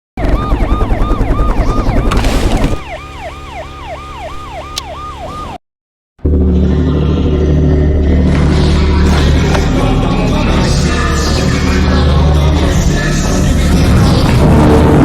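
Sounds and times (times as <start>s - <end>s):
siren yelping: 0.2s - 5.6s.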